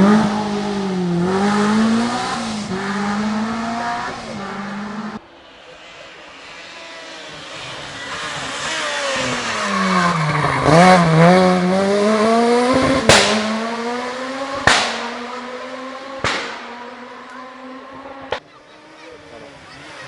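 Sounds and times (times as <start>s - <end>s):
rally car engine passing: 0.0s - 20.0s
sharp cracks: 13.0s - 13.6s, 14.6s - 15.4s, 16.2s - 16.9s.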